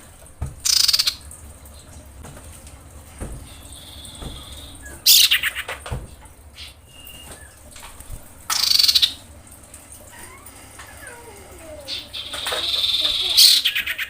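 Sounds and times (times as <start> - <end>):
bird harsh rasping calls: 0.7 - 1.2, 3.4 - 5.8, 8.5 - 9.2, 10.1 - 14.0
faint thin whistled notes: 6.9 - 7.6.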